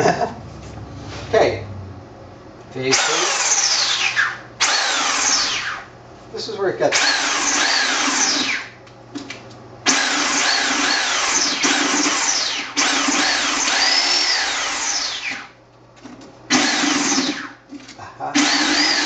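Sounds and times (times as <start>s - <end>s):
reciprocating saw cutting: 2.9s - 5.8s, 7.0s - 8.6s, 9.9s - 15.4s, 18.4s - 19.0s.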